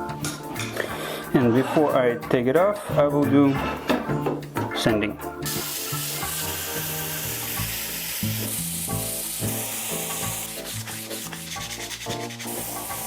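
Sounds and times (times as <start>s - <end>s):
music with walking bass: 0.0s - 13.0s
sandpaper hissing on spinning wood: 5.5s - 13.0s.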